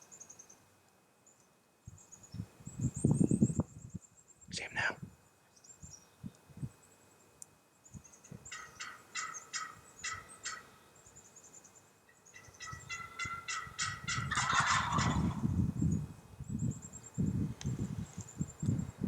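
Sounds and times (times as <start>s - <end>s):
wild turkey gobbling: 8.5s - 10.8s, 12.3s - 15.4s.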